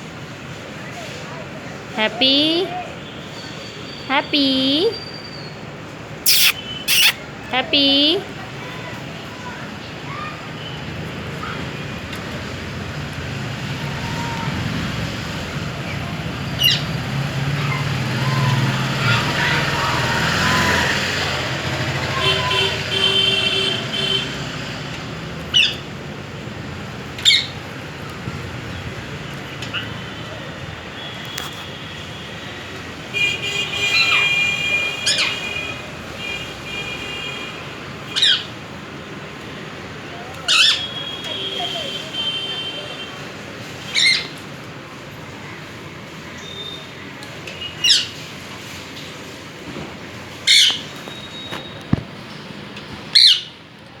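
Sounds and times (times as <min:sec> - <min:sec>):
faint short whistle: 0:06.3 - 0:07.2
parakeet screeching: 0:06.3 - 0:07.2, 0:50.5 - 0:50.9, 0:53.2 - 0:53.5.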